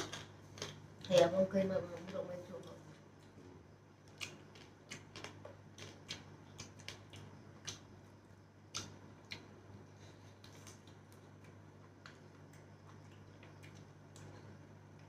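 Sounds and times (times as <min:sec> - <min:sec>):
chewing and lip-smacking: 0:04.0 - 0:15.0.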